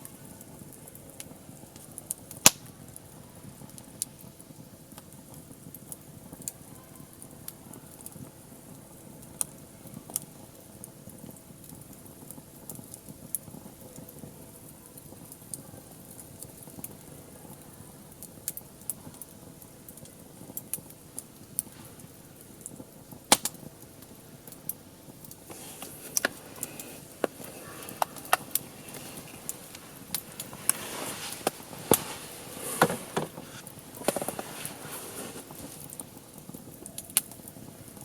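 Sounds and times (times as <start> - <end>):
low steady hiss: 0.0 - 38.0
wood fire crackling: 0.0 - 38.0
sharp pops: 23.3 - 23.6, 25.5 - 36.0.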